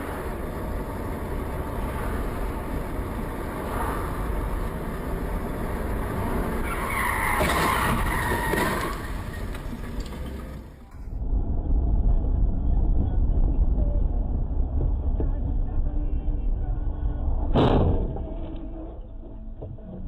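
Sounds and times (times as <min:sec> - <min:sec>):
tyres skidding: 0:00.0 - 0:11.2
car tyre and engine noise: 0:00.0 - 0:20.0.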